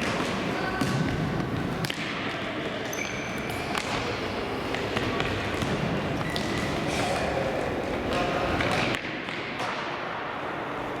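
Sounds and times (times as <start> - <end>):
shoes squeaking on floor: 2.9 - 3.7, 6.1 - 7.2.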